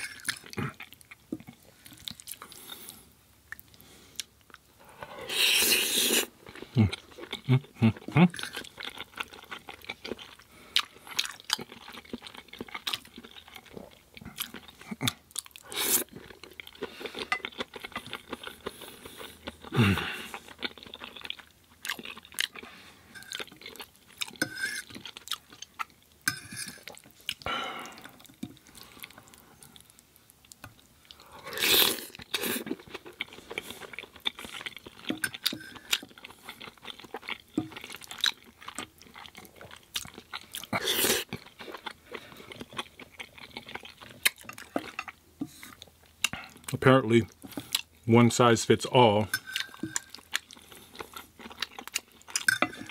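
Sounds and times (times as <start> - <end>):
wet chewing and lip smacks: 20.3 - 26.2, 26.8 - 31.3, 32.0 - 48.0, 49.4 - 52.9.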